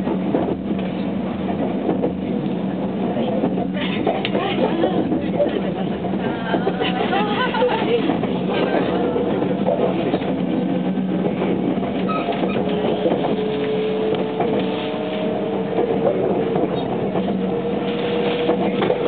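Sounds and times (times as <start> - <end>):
wheels rumbling on rails: 0.0 - 19.0
train motor whine: 11.9 - 19.0.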